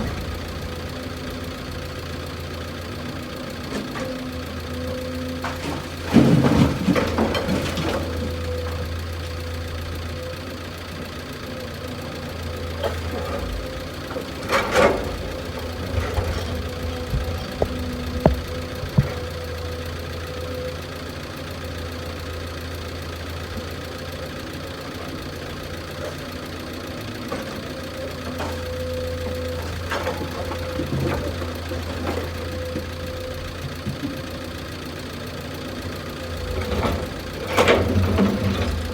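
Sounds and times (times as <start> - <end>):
machinery clanks and knocks: 0.0 - 10.2, 12.3 - 20.8, 25.4 - 34.4, 35.8 - 38.9
diesel engine idling: 0.0 - 38.9.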